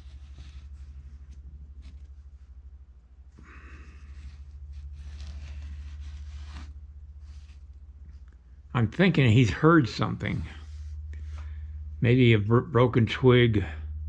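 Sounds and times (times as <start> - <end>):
hands rustling and scraping clay: 0.0 - 8.6
steady low hum: 0.0 - 14.0.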